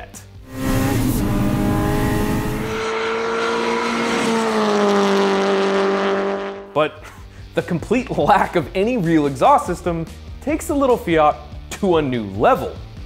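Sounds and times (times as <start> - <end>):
car engine at high revs: 0.4 - 6.7.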